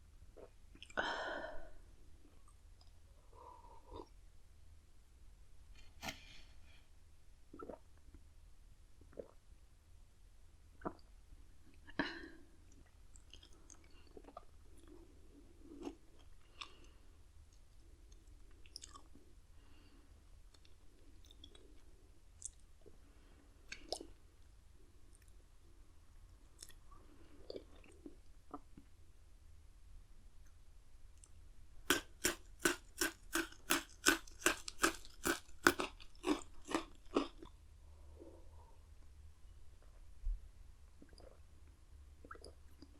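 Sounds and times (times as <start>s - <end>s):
chewing with crunches: 31.9s - 37.6s.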